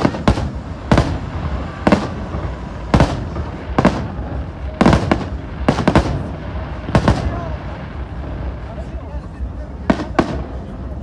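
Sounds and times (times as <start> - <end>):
fireworks banging: 0.0 - 11.0
steady low rumble: 0.0 - 11.0.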